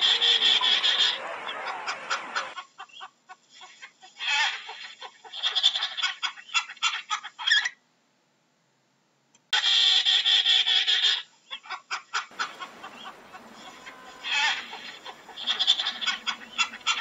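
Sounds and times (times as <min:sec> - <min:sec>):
penguins calling: 0:00.0 - 0:02.6, 0:12.3 - 0:17.0.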